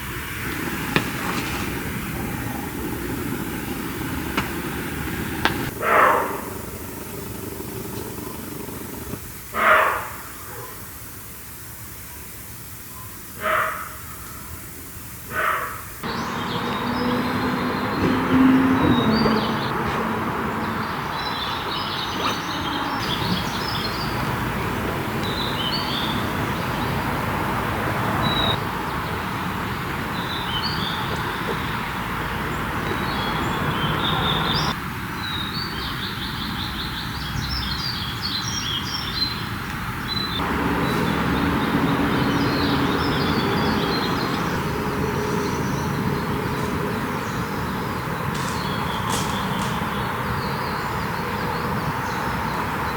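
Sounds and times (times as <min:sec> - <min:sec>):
small birds chirping and singing: 0:00.0 - 0:10.5, 0:16.0 - 0:52.9
outdoor background hiss: 0:00.0 - 0:52.9.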